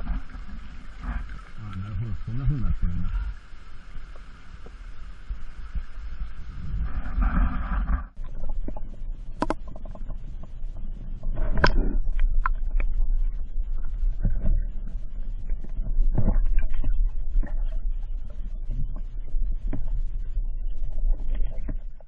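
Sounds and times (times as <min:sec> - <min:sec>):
rushing waterfall rumble: 0:00.0 - 0:07.2.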